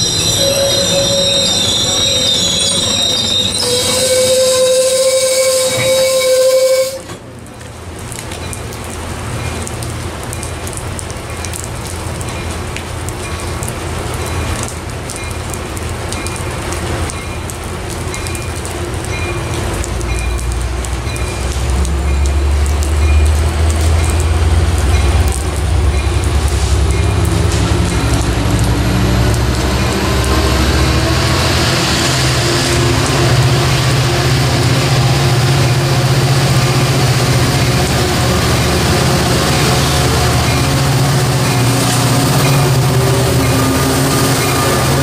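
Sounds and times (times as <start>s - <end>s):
train wheel squeal: 0.0s - 7.2s, 38.6s - 45.0s
low train rumble: 0.0s - 45.0s.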